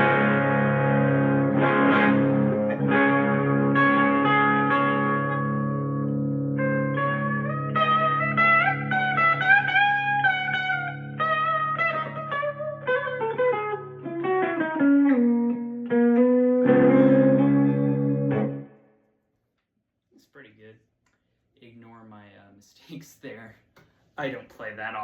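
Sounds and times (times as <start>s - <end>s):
electric guitar lead melody: 0.0s - 19.0s.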